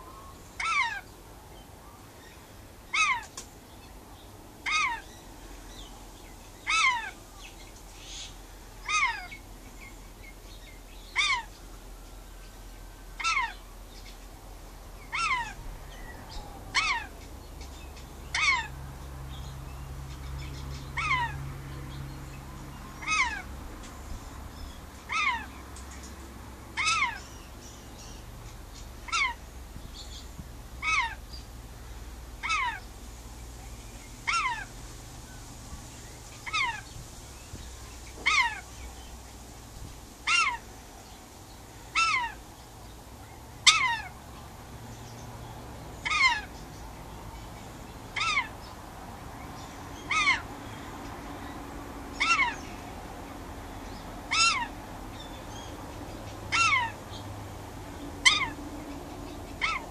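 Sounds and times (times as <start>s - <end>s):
bird calling: 0.0s - 1.2s, 1.8s - 3.5s, 4.6s - 11.8s, 13.0s - 14.2s, 15.0s - 18.8s, 19.4s - 21.9s, 23.0s - 23.6s, 24.6s - 26.1s, 26.8s - 31.5s, 32.4s - 32.9s, 33.8s - 39.2s, 40.2s - 40.7s, 41.7s - 42.5s, 43.6s - 44.2s, 46.0s - 48.8s, 49.4s - 57.3s, 58.0s - 59.9s.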